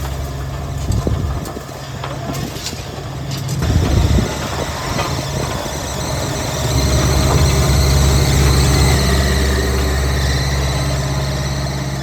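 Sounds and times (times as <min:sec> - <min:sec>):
heavy diesel engine running: 0:00.0 - 0:12.0
high-pitched squeal: 0:03.6 - 0:12.0.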